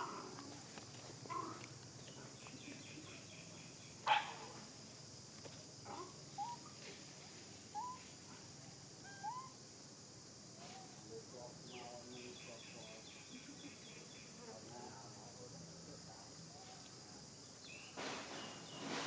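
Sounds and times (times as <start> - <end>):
animal calls: 1.2 - 1.8, 5.9 - 6.8, 7.7 - 9.6.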